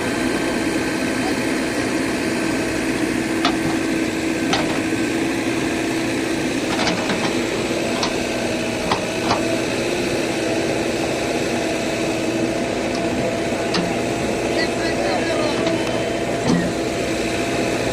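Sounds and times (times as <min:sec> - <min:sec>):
diesel engine running: 0:00.0 - 0:17.9.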